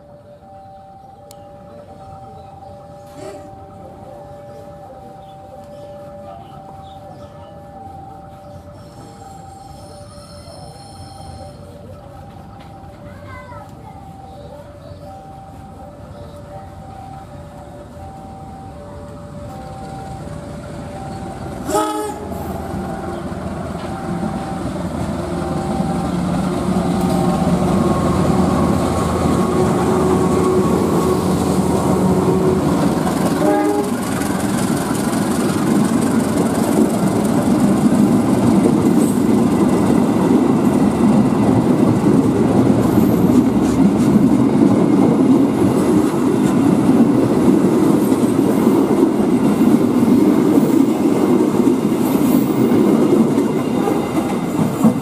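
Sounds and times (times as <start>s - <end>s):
locomotive engine drone: 0.0s - 55.0s
wheels clattering over rail joints: 19.0s - 55.0s
train horn blast: 21.6s - 23.2s, 32.0s - 34.1s.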